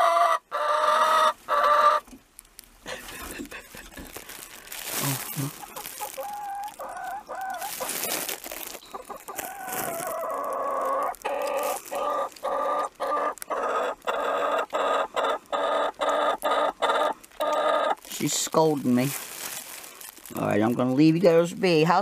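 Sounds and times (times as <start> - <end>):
hens clucking: 0.0 - 2.2, 4.9 - 19.1
hen squawking loudly: 5.8 - 8.1.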